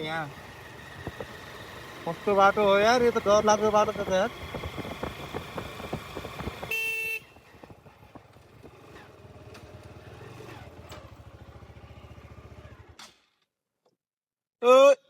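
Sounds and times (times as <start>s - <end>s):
motorcycle engine running: 0.0s - 13.0s
horn beep: 6.6s - 7.3s.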